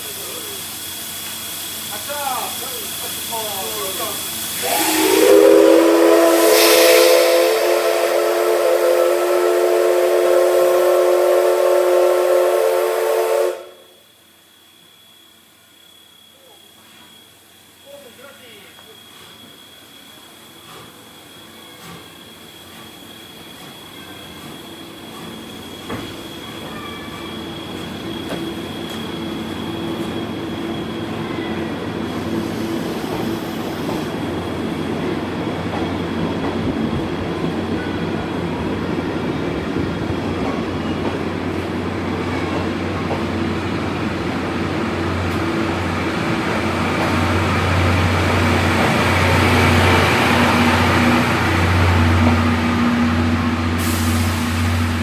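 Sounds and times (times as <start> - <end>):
steam train rumbling: 0.0 - 55.0
train wheels clattering: 20.5 - 55.0.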